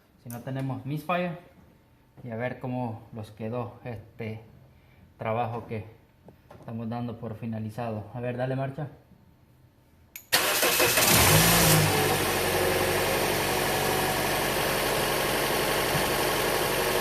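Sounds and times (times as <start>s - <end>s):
car engine starting and idling: 10.3s - 17.0s.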